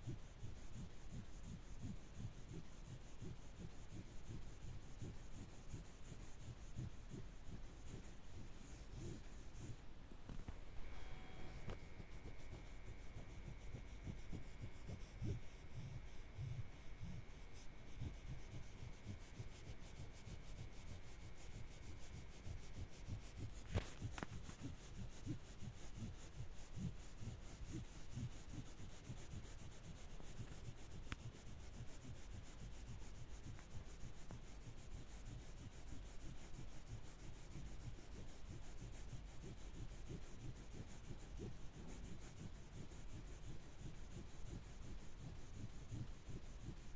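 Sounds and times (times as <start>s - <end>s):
faint high tone: 10.8s - 11.7s.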